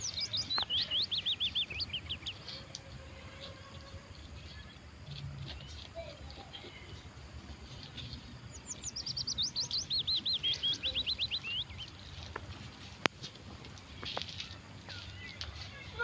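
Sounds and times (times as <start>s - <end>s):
songbird singing: 0.0s - 16.0s.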